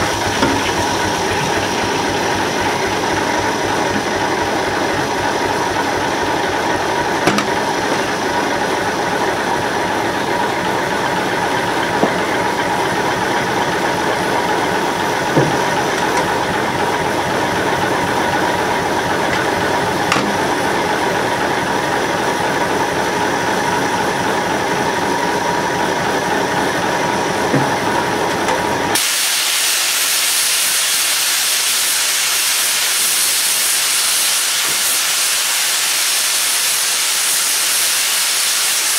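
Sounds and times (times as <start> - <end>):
steam engine machinery whining: 0.0 - 38.9
sharp knocks: 7.2 - 7.6
hiss of escaping steam: 29.0 - 38.9.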